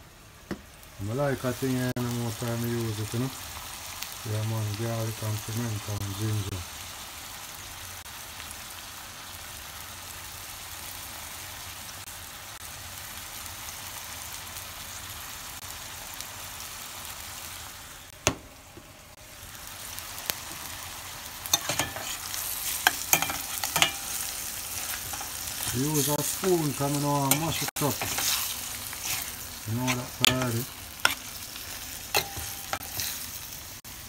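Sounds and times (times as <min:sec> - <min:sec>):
food sizzling in a pot: 0:00.0 - 0:34.0
spoon scraping a pot: 0:21.6 - 0:24.1, 0:27.3 - 0:31.3, 0:32.1 - 0:33.2.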